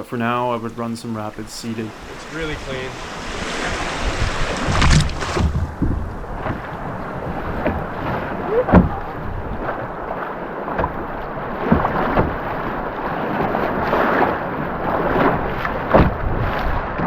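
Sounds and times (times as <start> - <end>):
whitewater rushing: 0.0 - 15.9
wind buffeting microphone: 0.0 - 17.0.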